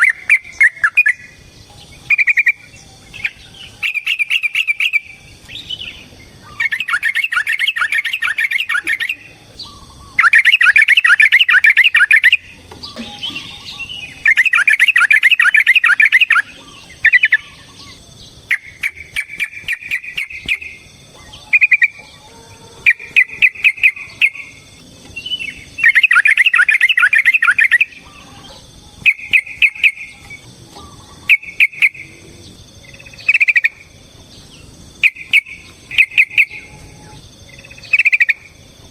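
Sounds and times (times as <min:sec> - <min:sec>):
clipped bird calls: 0:00.0 - 0:32.2, 0:32.8 - 0:38.6
sharp bird clicks: 0:06.6 - 0:22.0
bulbul singing rapid stuttering notes: 0:13.2 - 0:22.0, 0:22.8 - 0:28.0.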